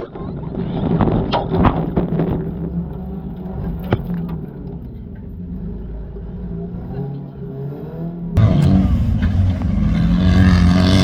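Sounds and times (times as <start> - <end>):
car engine running: 8.4 - 11.0.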